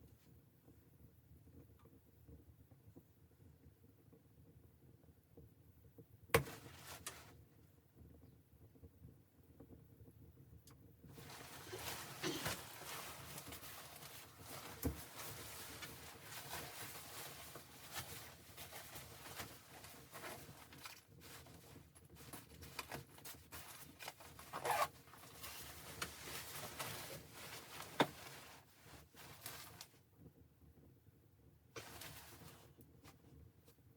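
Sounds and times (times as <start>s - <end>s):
close rustling and handling: 11.1s - 30.0s, 31.7s - 33.8s.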